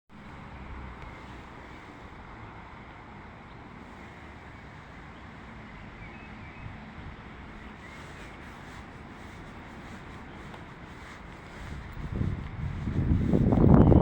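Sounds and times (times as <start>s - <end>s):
outdoor rush of noise: 0.1s - 14.0s
wind buffeting microphone: 3.9s - 14.0s.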